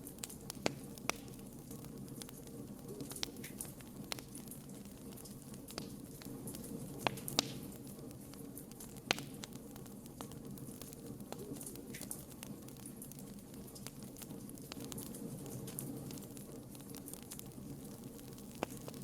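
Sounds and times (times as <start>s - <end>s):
campfire flames rushing: 0.0s - 19.0s
fire crackles and pops: 0.0s - 19.0s.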